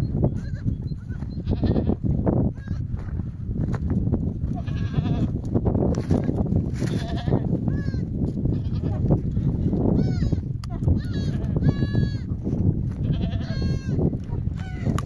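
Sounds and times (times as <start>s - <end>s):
sheep and goats bleating: 0.4s - 2.9s, 4.4s - 5.5s, 6.7s - 15.0s.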